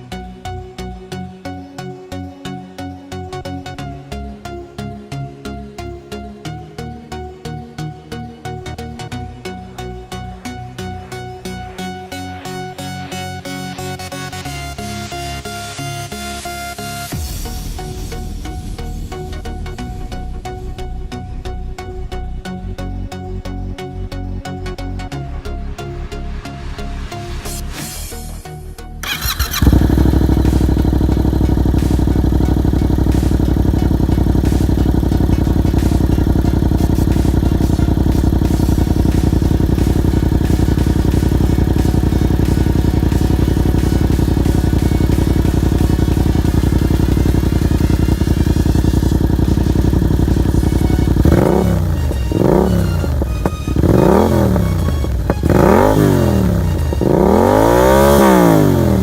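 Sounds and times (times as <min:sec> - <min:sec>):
engine revving: 0:27.3 - 0:59.0
motorcycle engine idling: 0:29.0 - 0:59.0.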